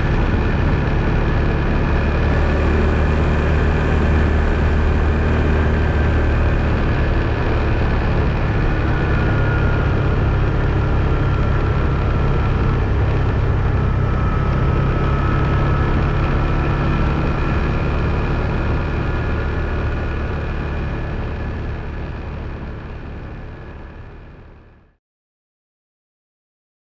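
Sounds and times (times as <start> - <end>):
atv engine running: 0.0 - 24.9
faint whine: 0.0 - 24.9.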